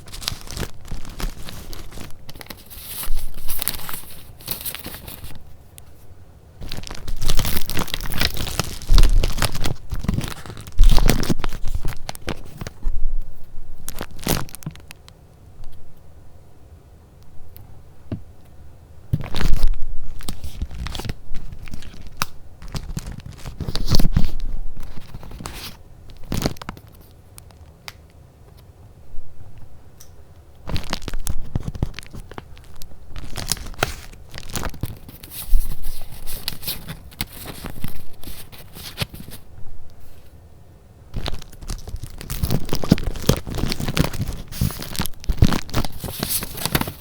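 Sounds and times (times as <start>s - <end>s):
paper rustling and tearing: 0.0s - 5.5s, 6.6s - 12.9s, 19.2s - 27.1s, 30.7s - 40.3s, 41.2s - 47.0s.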